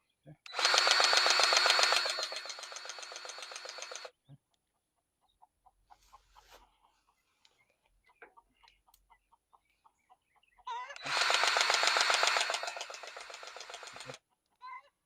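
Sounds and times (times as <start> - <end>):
grease gun motor buzzing: 0.5 - 4.1, 11.0 - 14.2.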